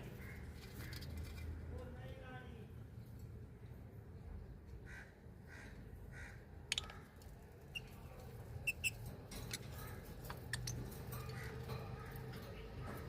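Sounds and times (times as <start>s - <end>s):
birds calling: 8.6s - 13.0s.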